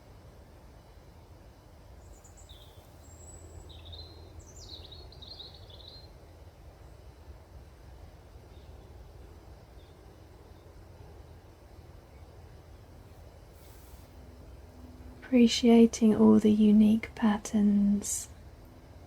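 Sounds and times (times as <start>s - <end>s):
low background rumble: 0.0s - 19.0s
songbird chirping and trilling: 2.0s - 7.0s.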